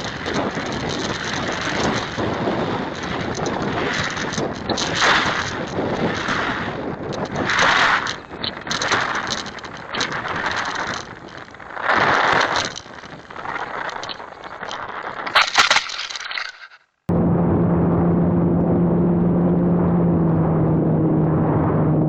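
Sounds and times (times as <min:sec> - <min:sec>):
wind noise on microphone: 0:00.0 - 0:16.2, 0:17.1 - 0:22.0
crackle: 0:00.0 - 0:17.1.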